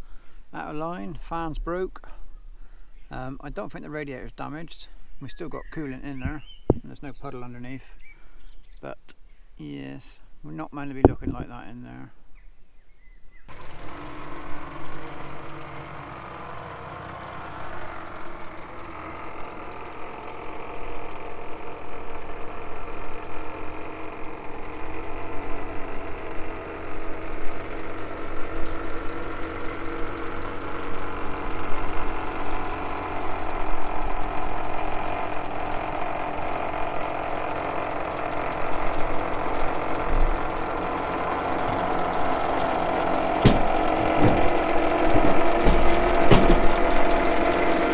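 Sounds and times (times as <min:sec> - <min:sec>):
tractor diesel engine clattering: 0:13.5 - 0:47.9.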